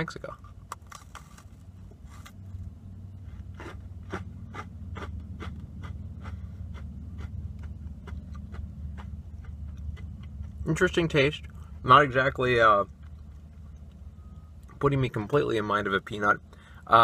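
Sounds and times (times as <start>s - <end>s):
low steady hum: 0.0s - 17.0s
cookie crunching while chewed: 3.2s - 11.2s.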